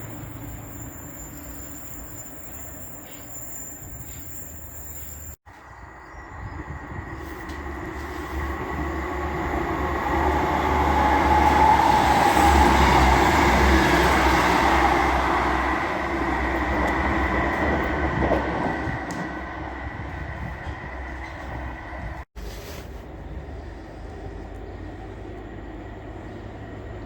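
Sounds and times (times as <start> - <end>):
low rumble of train: 0.0 - 27.0
train wheels on track: 6.9 - 22.3.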